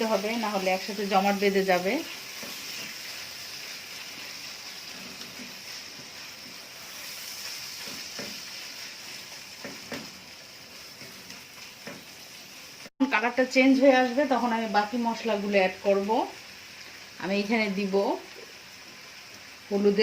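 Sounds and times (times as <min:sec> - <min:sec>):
meat sizzling in oil: 0:00.0 - 0:20.0
spoon scraping a pan: 0:02.0 - 0:12.3.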